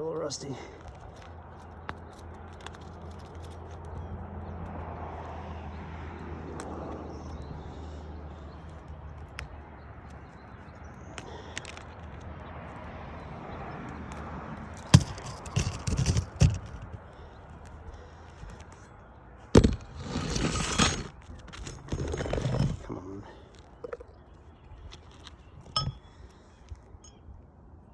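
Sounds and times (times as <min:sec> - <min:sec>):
shingle scraping crackle: 0:14.8 - 0:18.9, 0:19.5 - 0:24.1.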